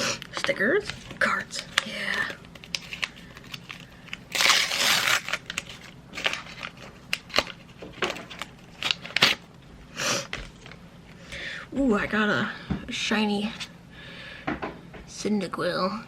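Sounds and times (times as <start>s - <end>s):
cards crackling and clicking: 0.2s - 9.5s
packaging crinkling: 0.2s - 9.5s.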